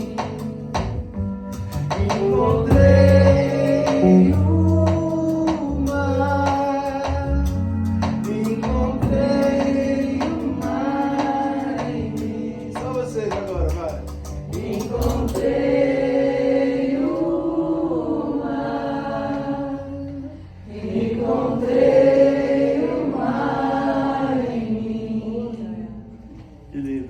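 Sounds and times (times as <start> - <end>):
voices singing long notes: 0.0 - 13.2.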